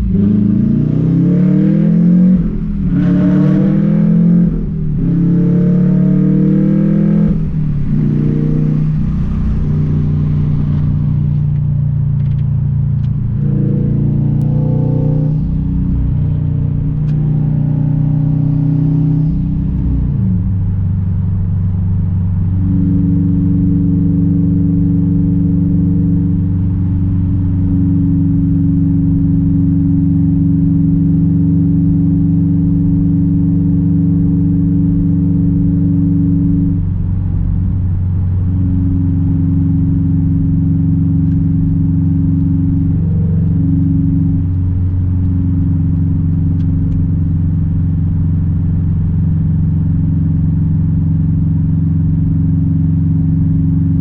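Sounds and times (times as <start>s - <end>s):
car engine droning: 0.0s - 54.0s.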